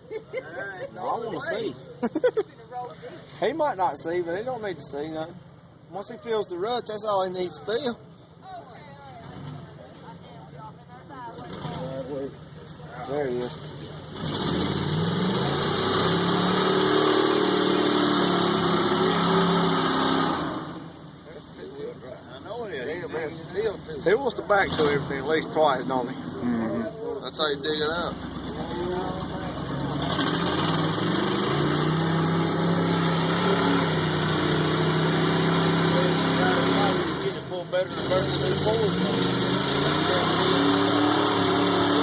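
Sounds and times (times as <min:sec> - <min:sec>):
truck engine revving: 0:09.1 - 0:10.1, 0:11.3 - 0:22.0, 0:23.0 - 0:42.0.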